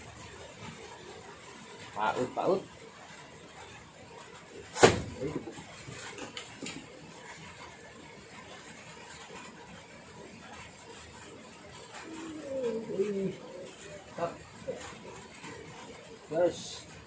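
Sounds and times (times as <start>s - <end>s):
sharp knock: 4.8s - 5.3s.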